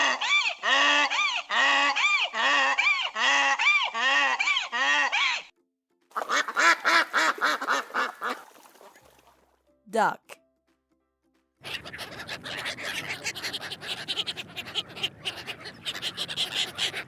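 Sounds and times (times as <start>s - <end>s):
donkey braying: 11.6s - 17.0s.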